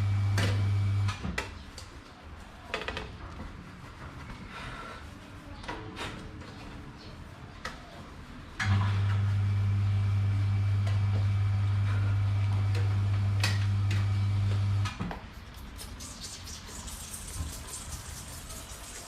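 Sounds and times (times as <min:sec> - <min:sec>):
electric fan motor humming: 0:00.0 - 0:01.1, 0:08.6 - 0:14.9.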